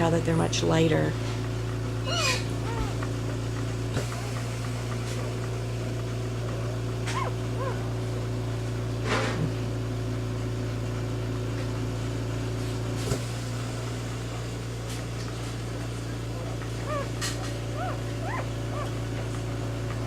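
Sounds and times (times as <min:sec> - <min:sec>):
puppies squeaking: 0:02.0 - 0:03.1, 0:06.4 - 0:07.9, 0:16.4 - 0:19.0.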